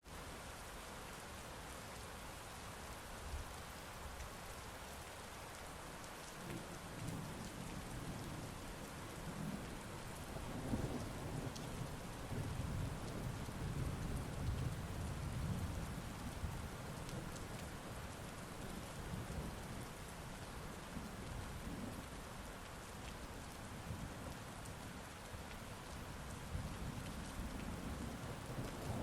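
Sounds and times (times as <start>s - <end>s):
heavy rain falling: 0.1s - 29.0s
low rolling thunder: 9.3s - 16.6s, 26.5s - 29.0s.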